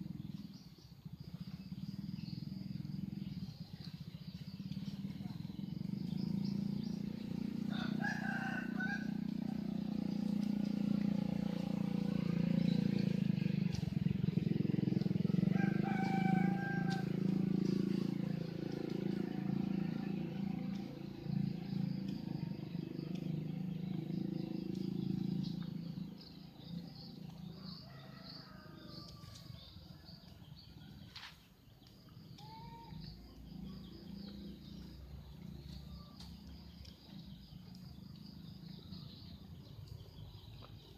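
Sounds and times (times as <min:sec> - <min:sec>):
low engine drone: 0:00.0 - 0:27.8
birds chirping: 0:00.0 - 0:40.9
insects chirping: 0:00.0 - 0:40.9.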